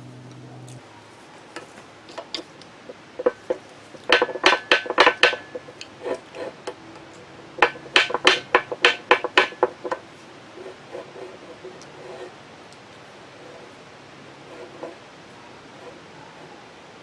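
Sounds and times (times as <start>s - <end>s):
hammer tapping on metal: 3.2s - 6.2s, 7.6s - 10.0s.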